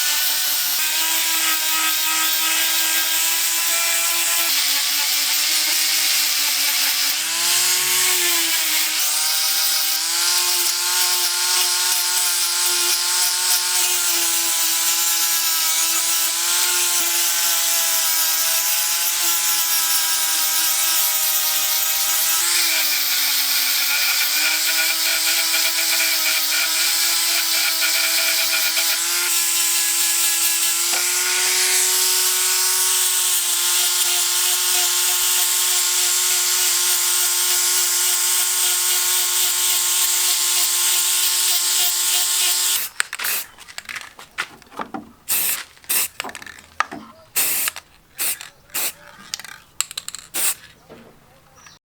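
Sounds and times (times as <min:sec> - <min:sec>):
power tool motor running: 0:00.0 - 0:44.1
hiss of abrasion: 0:45.3 - 0:46.2, 0:47.4 - 0:49.5.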